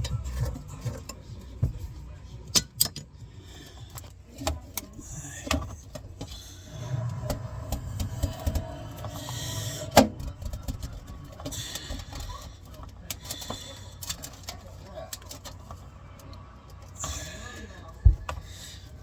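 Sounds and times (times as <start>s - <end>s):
tools working on faucet fittings: 2.5s - 6.4s.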